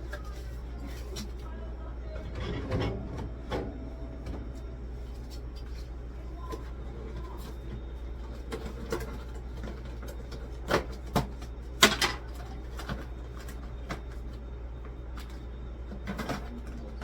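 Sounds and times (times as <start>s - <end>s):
steady low hum: 0.0s - 17.0s
items clicking and clattering: 8.3s - 14.2s, 15.2s - 17.0s.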